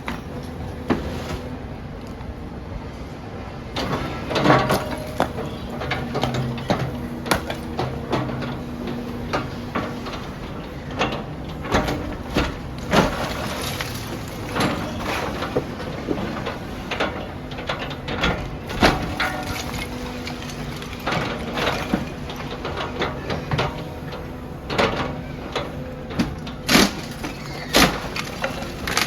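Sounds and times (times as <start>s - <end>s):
excavator engine humming: 0.0s - 29.0s
rubble falling: 3.8s - 29.0s
masonry breaking: 4.1s - 23.5s, 26.2s - 29.0s.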